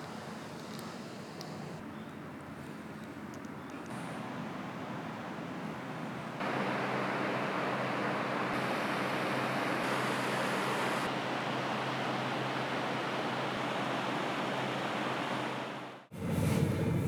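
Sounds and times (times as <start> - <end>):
car road and tyre noise: 0.0 - 17.0
low engine hum: 3.9 - 17.0.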